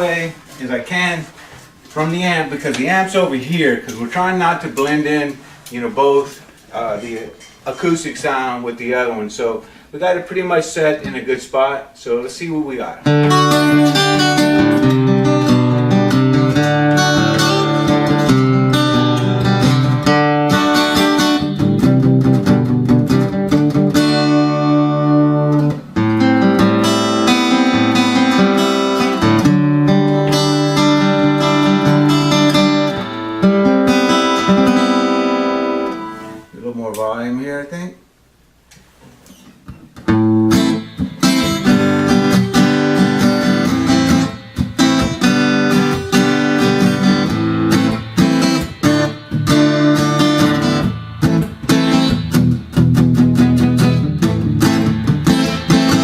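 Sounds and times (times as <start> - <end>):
amplified acoustic guitar strumming: 12.7 - 37.1, 39.2 - 56.0.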